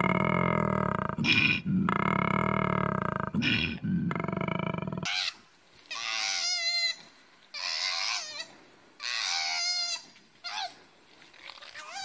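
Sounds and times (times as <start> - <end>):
koala deep bellow: 0.0 - 5.1.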